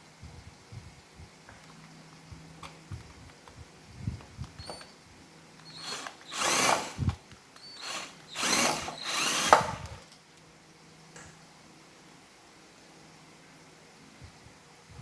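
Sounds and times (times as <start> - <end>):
electric screwdriver running: 5.6 - 10.0.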